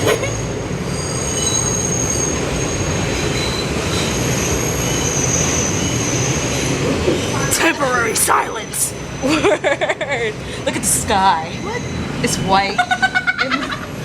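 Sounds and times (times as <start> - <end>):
high wheel squeal: 0.0 - 9.5, 11.4 - 12.6
train rumbling on rails: 0.0 - 14.0.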